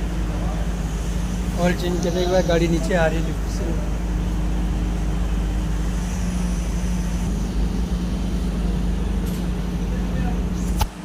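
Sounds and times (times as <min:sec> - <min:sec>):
car lift humming: 0:00.0 - 0:11.0.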